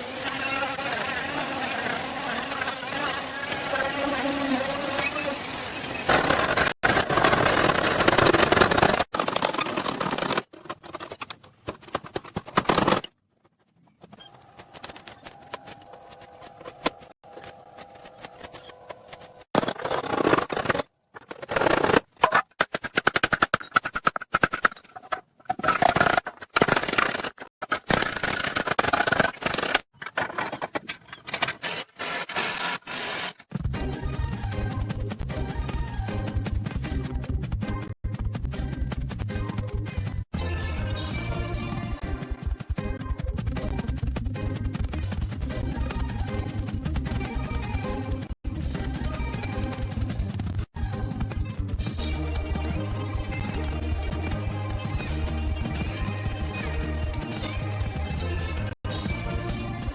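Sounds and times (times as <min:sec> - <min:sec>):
workshop scraping and machinery: 0:00.0 - 0:12.3, 0:30.0 - 0:33.5.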